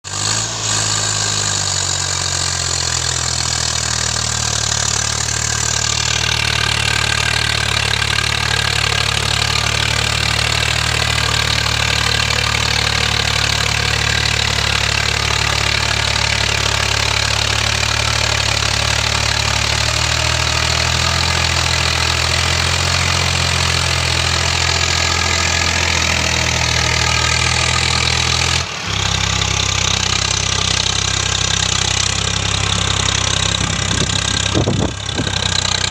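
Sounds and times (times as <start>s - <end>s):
tractor diesel engine under load: 0.0s - 35.9s.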